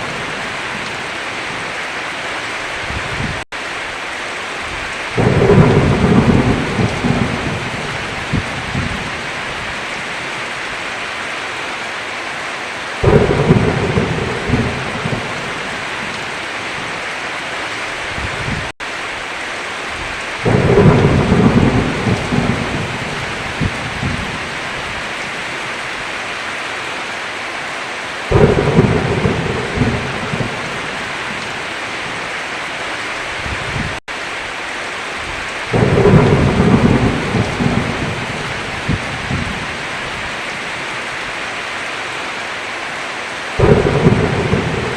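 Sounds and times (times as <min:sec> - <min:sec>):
heavy rain: 0:00.0 - 0:44.9
thunder rumbling: 0:04.6 - 0:10.3, 0:13.0 - 0:17.0, 0:19.9 - 0:25.5, 0:28.2 - 0:32.2, 0:33.3 - 0:34.0, 0:35.2 - 0:40.9, 0:43.6 - 0:44.9.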